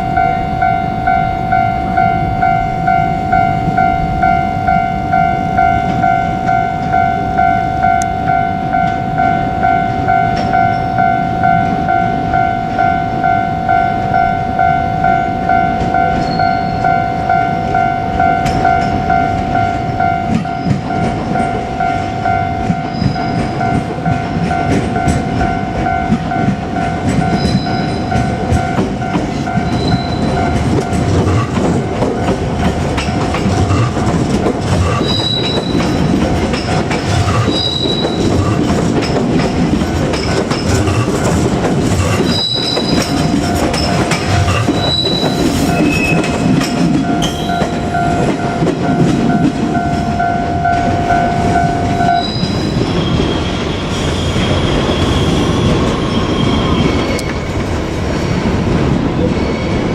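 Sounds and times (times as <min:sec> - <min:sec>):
crossing warning bell ringing: 0:00.0 - 0:59.9
train wheels rumbling on rail: 0:00.0 - 0:59.9
high wheel squeals: 0:14.5 - 0:17.2, 0:21.8 - 0:23.8, 0:27.2 - 0:28.7, 0:29.4 - 0:32.3, 0:34.8 - 0:39.1, 0:42.0 - 0:57.6.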